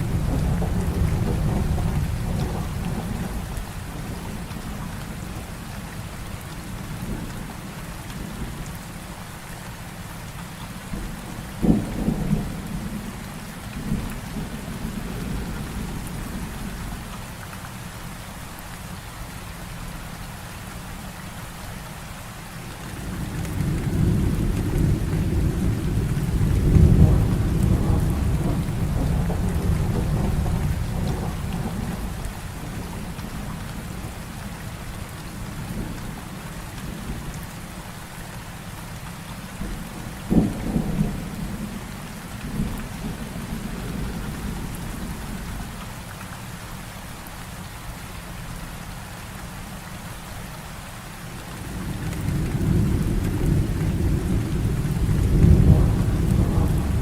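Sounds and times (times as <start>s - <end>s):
low roll of thunder: 0.0s - 5.4s, 10.9s - 17.0s, 22.9s - 37.3s, 39.6s - 45.8s, 51.6s - 57.0s
heavy rain falling: 0.0s - 57.0s
sharp thunder cracks: 52.2s - 57.0s.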